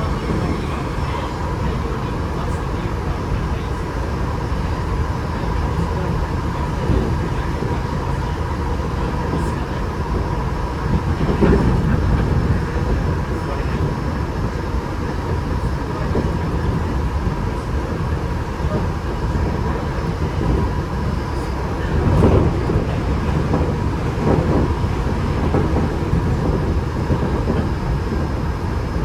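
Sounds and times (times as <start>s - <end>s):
faint constant high tone: 0.0s - 2.9s
train wheels rumbling on rail: 0.0s - 29.0s.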